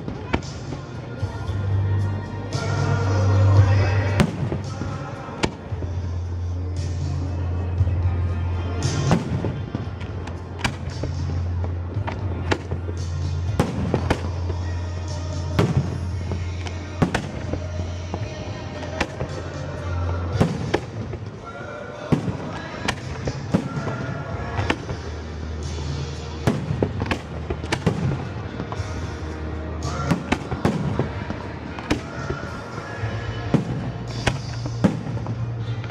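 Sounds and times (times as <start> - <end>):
music with low bass: 0.0 - 21.4, 22.1 - 35.9
fireworks bangs: 4.1 - 6.1, 8.8 - 25.2, 26.3 - 29.2, 29.8 - 35.9.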